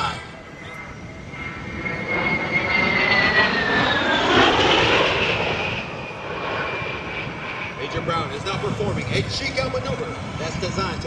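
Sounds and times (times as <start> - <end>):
jet engine whine passing: 0.0 - 11.0.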